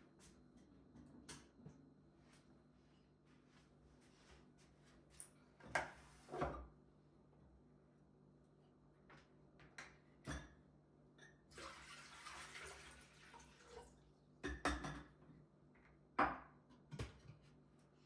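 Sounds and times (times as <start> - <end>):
kitchen tap running: 11.5 - 14.0
dishes clinking and knocking: 14.4 - 15.2.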